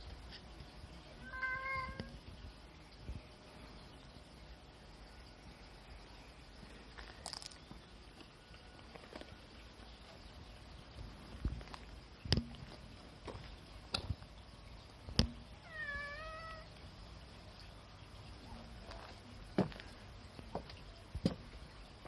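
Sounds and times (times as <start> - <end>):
cat meowing: 1.2 - 2.1, 15.6 - 16.7.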